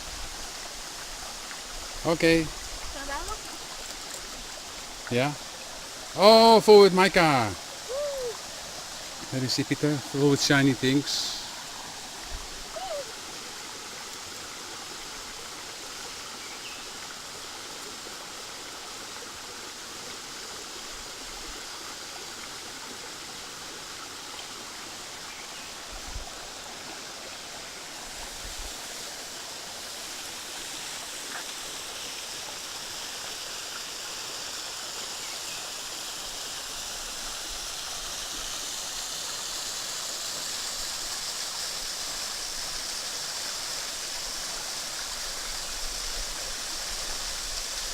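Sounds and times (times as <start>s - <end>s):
waterfall rushing: 1.7s - 13.7s.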